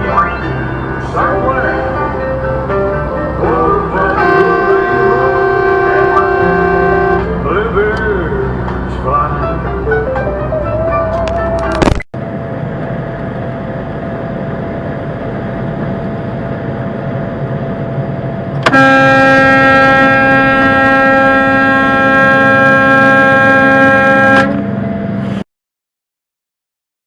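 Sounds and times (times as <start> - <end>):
road noise: 0.0 - 25.5
vehicle horn held: 4.2 - 7.3, 18.6 - 24.7.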